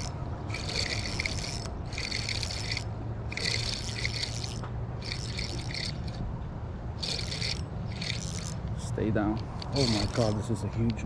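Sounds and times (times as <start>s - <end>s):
fishing reel cranking: 0.0s - 6.2s, 7.0s - 11.0s.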